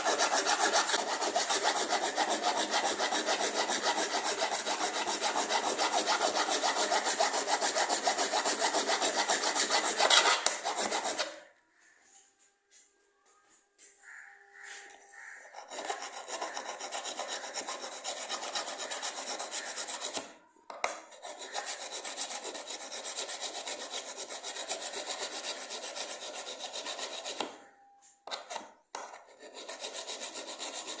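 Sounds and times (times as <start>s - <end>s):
metal blade scraping on sharpener: 0.0s - 11.5s, 15.5s - 20.3s, 21.0s - 27.7s.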